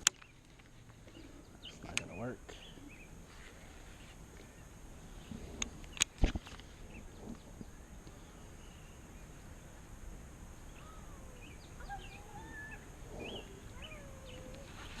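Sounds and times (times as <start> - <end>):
birds whistling calls: 10.7 - 15.0.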